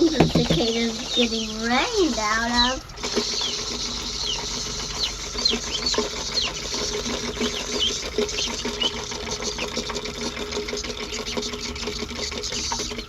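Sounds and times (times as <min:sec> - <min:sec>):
high falling chirps: 0:00.0 - 0:09.9
chickens scuffling: 0:00.0 - 0:13.0
cicadas buzzing: 0:00.0 - 0:13.0.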